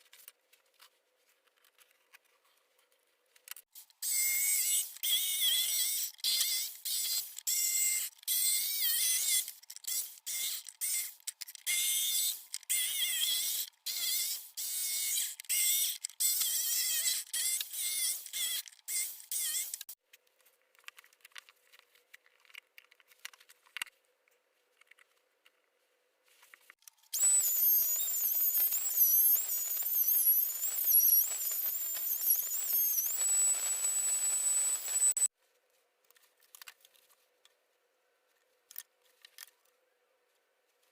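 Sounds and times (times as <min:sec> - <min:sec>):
gritty cutting noise on wood: 0:27.2 - 0:35.3
power tool whining: 0:27.2 - 0:35.3.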